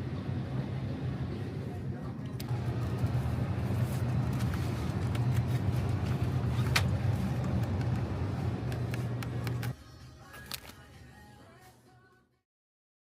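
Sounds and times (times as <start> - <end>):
car driving low rumble: 2.4 - 9.8.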